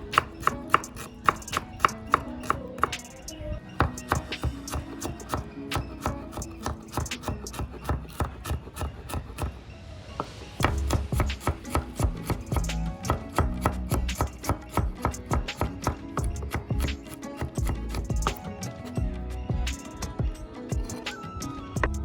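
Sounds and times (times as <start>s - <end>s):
background music: 0.0s - 22.0s
knife chopping on cutting board: 3.8s - 9.6s, 10.6s - 18.4s.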